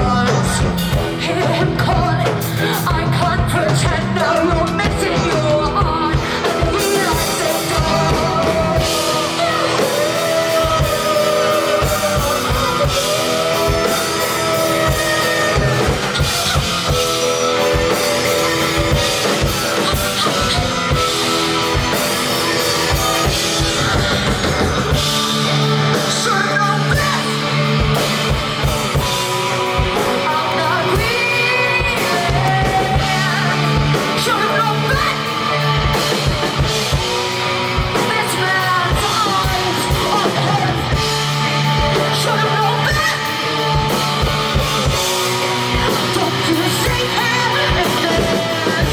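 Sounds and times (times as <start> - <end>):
drum kit: 0.0 - 48.9
guitar: 0.0 - 48.9
person singing long gliding notes: 2.5 - 27.9.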